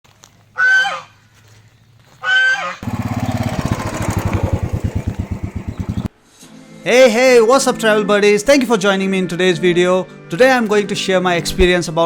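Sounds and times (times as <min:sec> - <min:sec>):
motorcycle engine running: 0:02.8 - 0:06.1.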